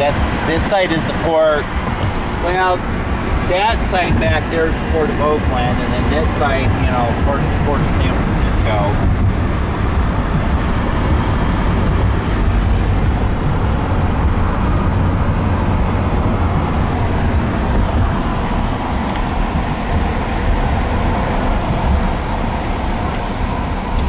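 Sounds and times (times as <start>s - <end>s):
car road noise rumble: 0.0s - 24.0s.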